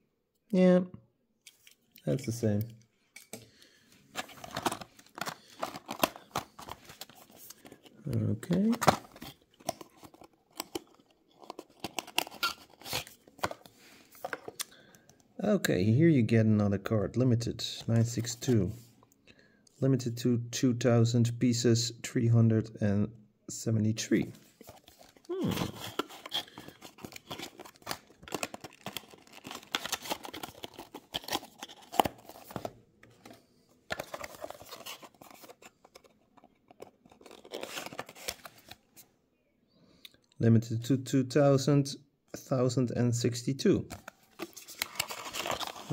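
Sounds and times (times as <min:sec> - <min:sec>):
cardboard and plastic packaging crinkling: 0:04.1 - 0:14.6, 0:24.5 - 0:38.8, 0:43.9 - 0:45.9.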